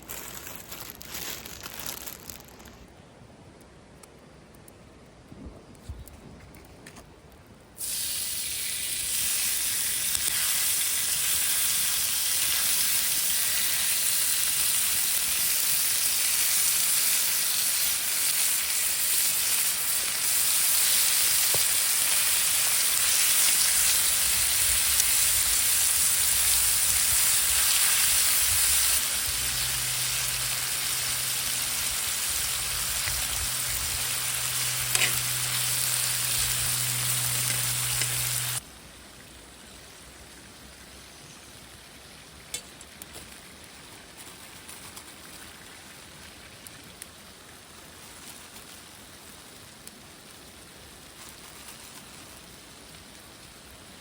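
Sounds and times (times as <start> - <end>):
food sizzling in a pan: 7.8 - 38.6.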